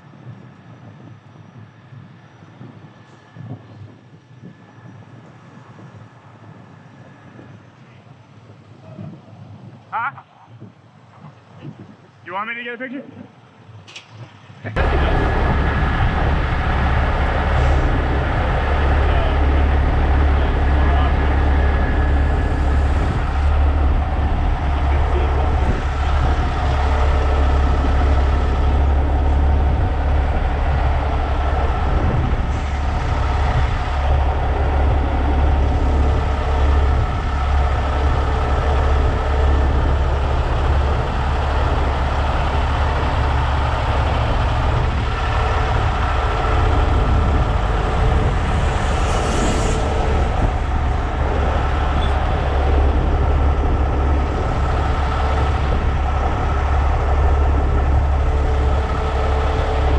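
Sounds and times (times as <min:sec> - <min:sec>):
truck diesel engine humming: 0:14.6 - 0:59.9.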